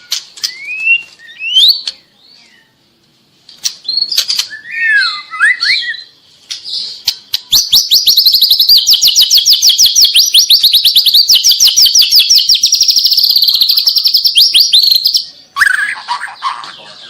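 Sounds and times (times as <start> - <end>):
bird singing whistled notes: 0.0 - 2.8, 3.8 - 16.0.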